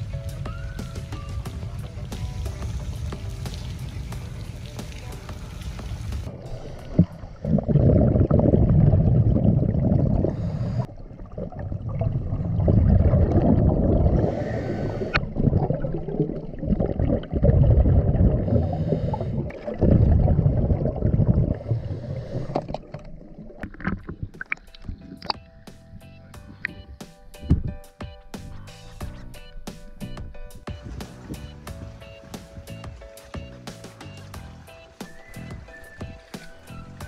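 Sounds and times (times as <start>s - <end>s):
underwater exhaust bubbles: 1.6s - 26.9s.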